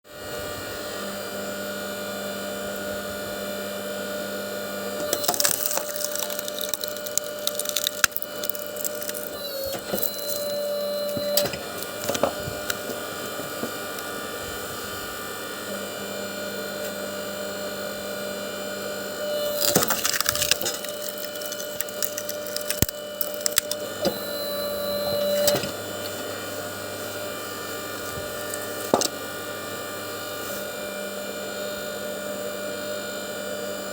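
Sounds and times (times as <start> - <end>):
power saw running: 4.0 - 31.4
wood splintering and cracking: 5.0 - 12.9, 19.4 - 24.0.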